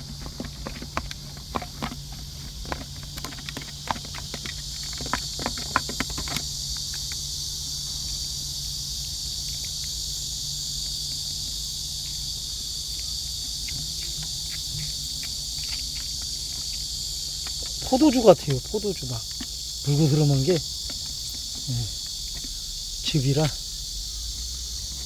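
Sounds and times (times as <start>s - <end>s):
insects shrilling: 0.0s - 25.0s.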